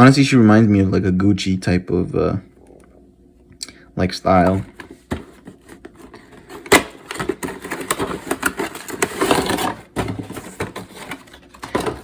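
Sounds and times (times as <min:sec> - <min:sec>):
crinkly packaging rustling: 0:04.4 - 0:12.0.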